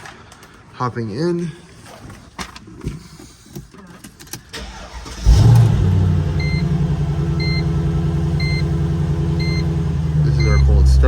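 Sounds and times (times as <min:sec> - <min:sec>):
car engine revving and idling: 0:04.6 - 0:11.0.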